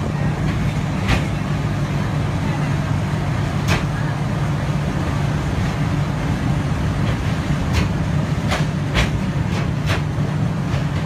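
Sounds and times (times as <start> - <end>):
train rumbling on track: 0.0 - 11.0
wheels clicking over rail joints: 7.0 - 11.0.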